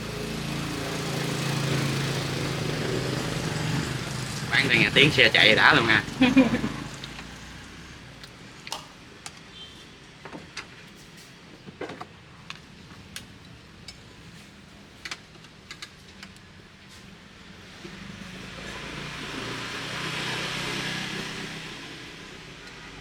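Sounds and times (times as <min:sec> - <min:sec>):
faint vehicle hum: 0:00.0 - 0:09.5.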